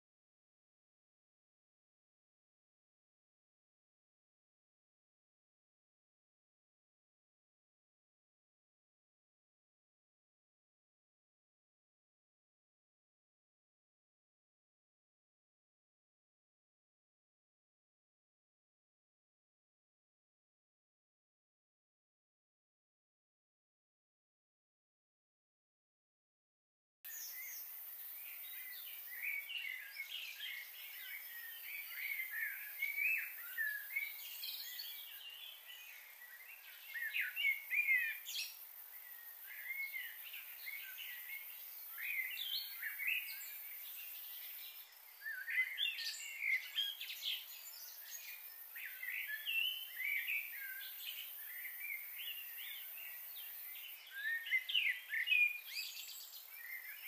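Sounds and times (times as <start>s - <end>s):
steady high hiss: 27.1s - 35.1s.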